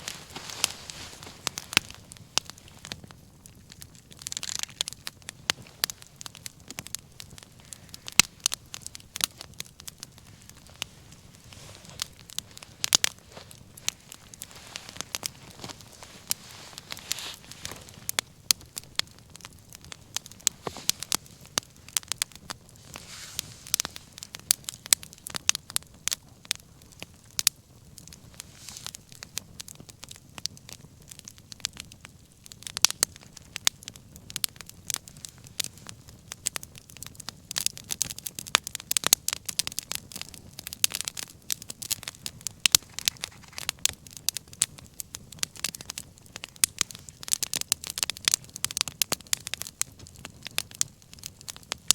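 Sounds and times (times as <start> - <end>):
hiss of flames: 0.0 - 27.2, 27.9 - 29.8
wood fire crackling and popping: 0.0 - 51.9.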